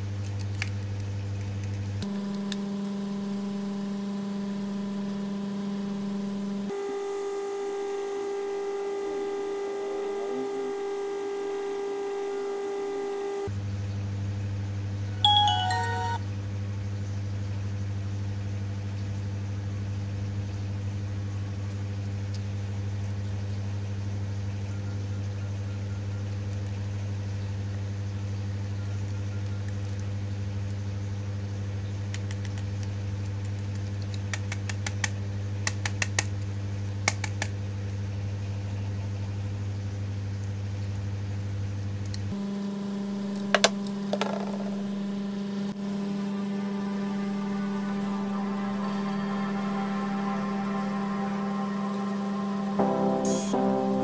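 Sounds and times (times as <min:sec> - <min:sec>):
low electrical hum: 0:00.0 - 0:54.0
short chiming tone: 0:15.2 - 0:16.2, 0:46.8 - 0:54.0.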